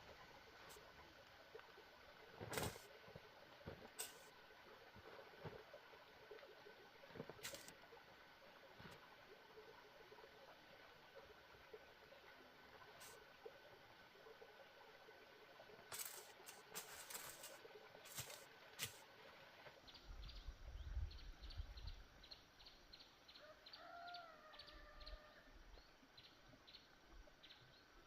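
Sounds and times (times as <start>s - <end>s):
faint bird chirps: 19.9s - 28.0s.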